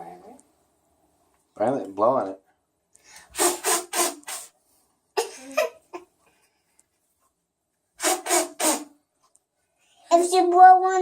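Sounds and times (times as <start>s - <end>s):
child blowing puffs of breath: 3.0s - 4.6s, 8.0s - 9.0s.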